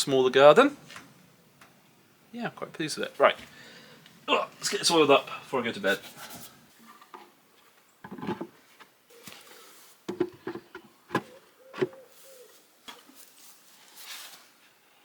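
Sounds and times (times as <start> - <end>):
knocks and clatters of handling: 8.0 - 8.9, 10.1 - 12.0.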